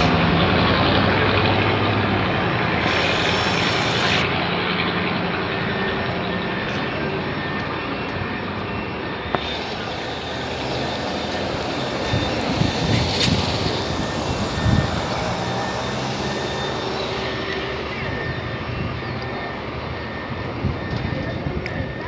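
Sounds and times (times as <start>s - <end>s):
bus diesel engine drone: 0.0s - 22.0s
road noise: 0.0s - 22.0s.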